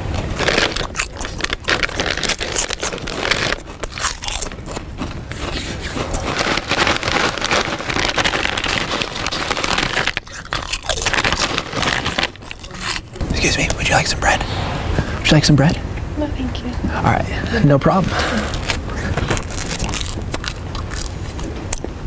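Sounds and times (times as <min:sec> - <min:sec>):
person chewing and crunching food: 0:00.0 - 0:13.2, 0:18.4 - 0:22.0.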